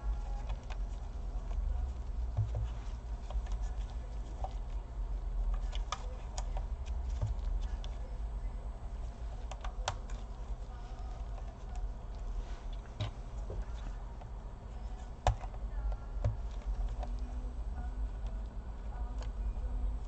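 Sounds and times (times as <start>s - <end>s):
low steady hum: 0.0s - 20.0s
plastic laptop parts clicking: 15.2s - 15.6s.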